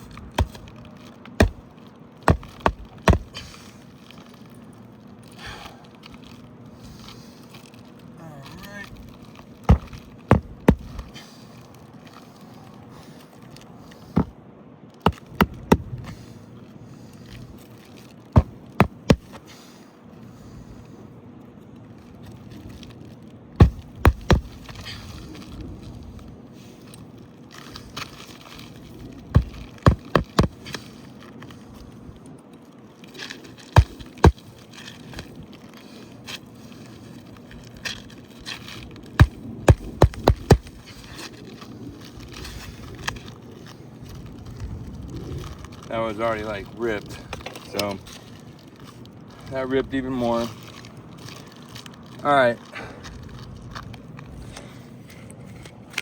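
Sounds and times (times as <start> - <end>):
hammer driving nails: 15.0 - 15.9, 29.4 - 30.6.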